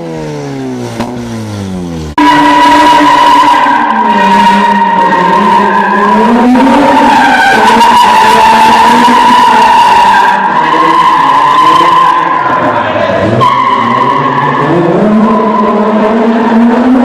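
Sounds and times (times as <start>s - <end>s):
rotary engine running hard: 0.0s - 2.2s.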